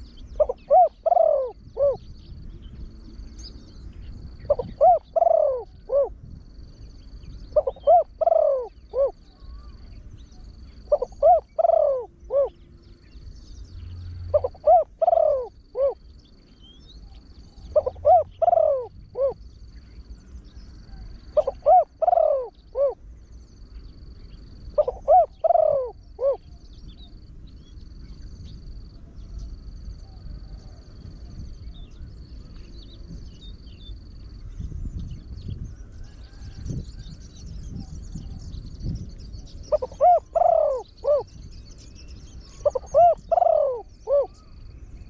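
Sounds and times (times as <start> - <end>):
dove cooing: 0.0 - 2.1, 4.4 - 6.3, 7.5 - 9.8, 10.8 - 12.6, 14.1 - 16.1, 17.6 - 19.5, 20.9 - 23.0, 24.7 - 26.6, 39.6 - 41.4, 42.5 - 44.6.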